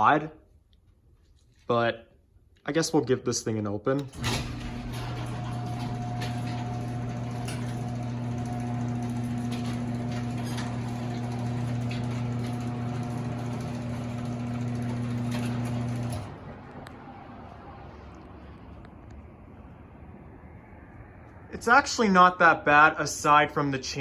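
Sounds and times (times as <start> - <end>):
garage door opener motor hum: 4.0 - 16.9.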